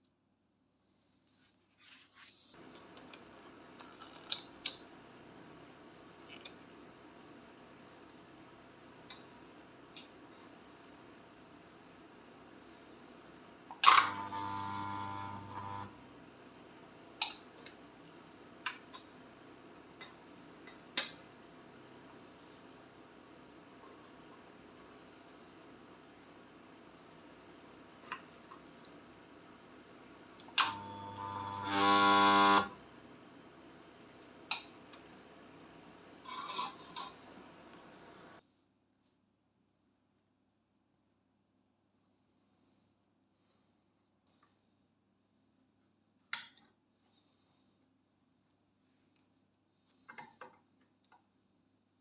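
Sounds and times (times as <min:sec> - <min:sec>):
transformer buzzing: 0:14.1 - 0:16.0, 0:30.6 - 0:32.8.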